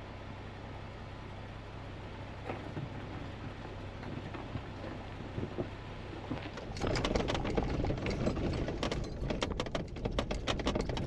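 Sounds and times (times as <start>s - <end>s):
off-road vehicle rumble: 0.0s - 11.0s
stones crunching under tyres: 2.4s - 11.0s.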